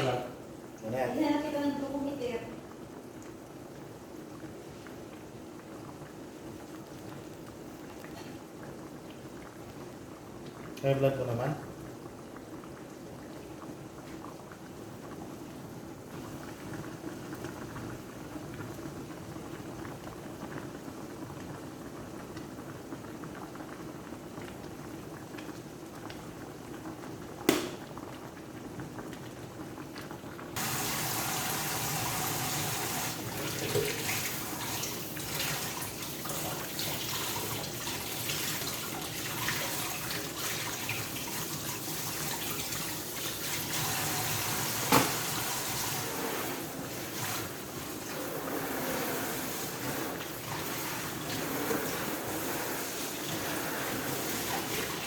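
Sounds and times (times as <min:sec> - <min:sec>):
pot simmering: 0:00.0 - 0:55.0
tap water running into sink: 0:30.6 - 0:55.0.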